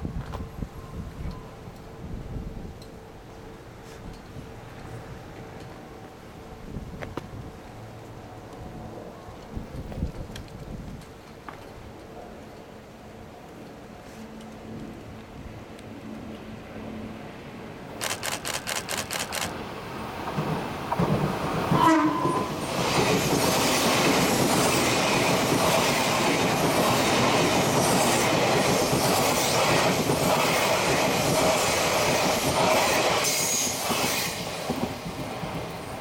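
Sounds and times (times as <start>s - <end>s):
train clicks: 9.4s - 12.7s, 17.9s - 21.9s, 22.6s - 36.0s
train wheels rumbling and rattling: 17.9s - 36.0s
train horn blast: 21.7s - 22.6s.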